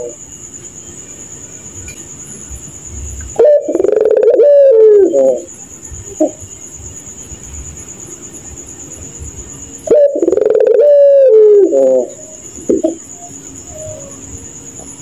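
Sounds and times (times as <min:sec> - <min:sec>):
dove cooing: 0:03.2 - 0:06.5, 0:09.8 - 0:14.9
high-pitched trill: 0:12.2 - 0:14.7.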